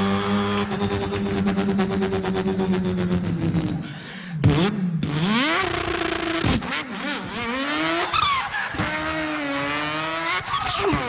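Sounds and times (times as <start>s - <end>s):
man imitating car engine: 10.7s - 11.0s.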